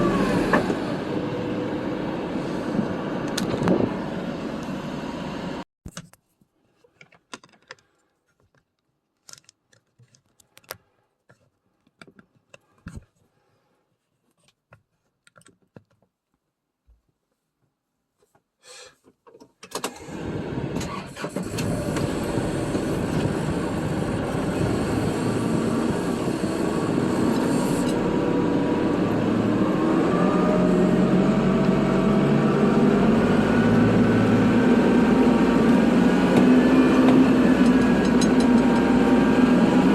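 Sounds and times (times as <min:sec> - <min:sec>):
tractor diesel engine: 0:00.0 - 0:05.6, 0:19.8 - 0:39.9
engine cranking and starting: 0:19.6 - 0:30.8.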